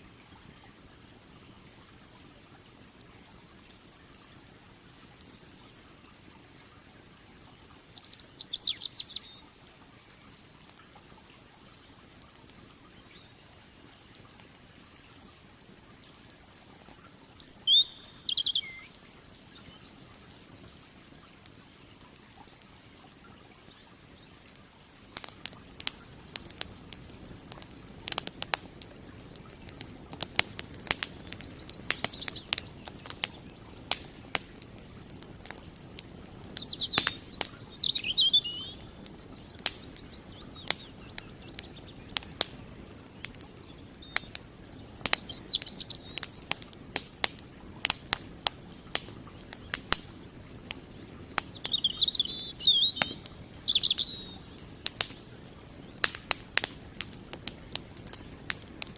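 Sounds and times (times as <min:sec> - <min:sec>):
flowing water: 0:00.0 - 0:58.9
wood fire crackling and popping: 0:00.2 - 0:09.0, 0:10.0 - 0:58.9
songbird twittering: 0:07.6 - 0:09.5, 0:16.9 - 0:20.9, 0:30.4 - 0:34.3, 0:35.8 - 0:46.5, 0:48.7 - 0:54.8.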